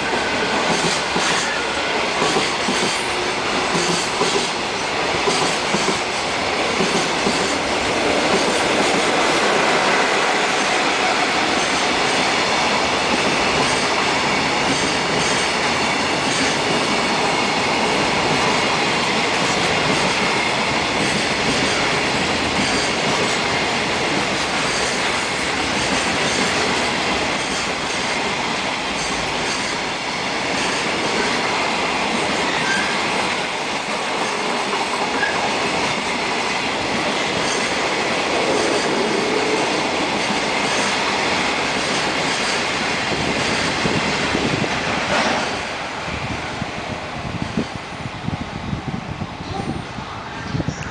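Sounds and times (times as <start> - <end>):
rail joint clicks: 0.4 - 17.1, 18.1 - 28.1, 28.8 - 36.1, 36.8 - 45.8.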